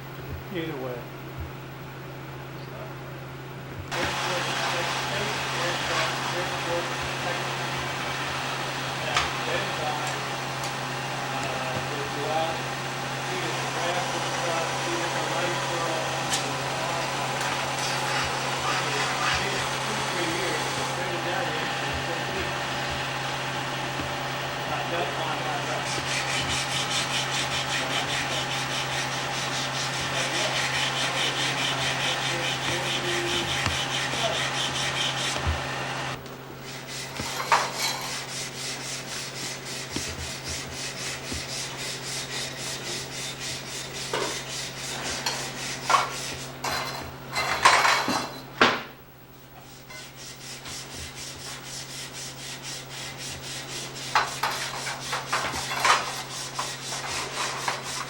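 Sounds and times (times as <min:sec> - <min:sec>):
steady low hum: 0:00.0 - 0:47.2
rhythmic scraping strokes: 0:13.3 - 0:46.9, 0:49.7 - 0:58.0.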